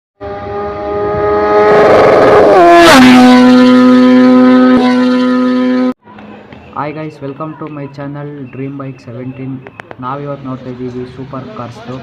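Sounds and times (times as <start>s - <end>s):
engine revving: 0.2s - 6.0s.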